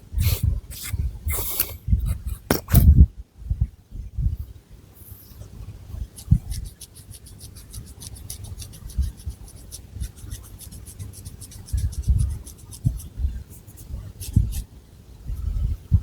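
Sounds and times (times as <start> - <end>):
fingernails scratching through hair: 6.1 - 14.6.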